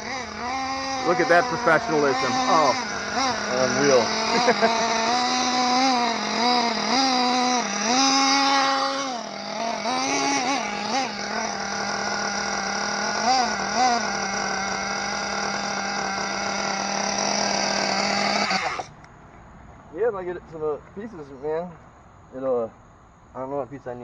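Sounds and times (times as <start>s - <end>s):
small engine buzzing high: 0.0s - 19.1s.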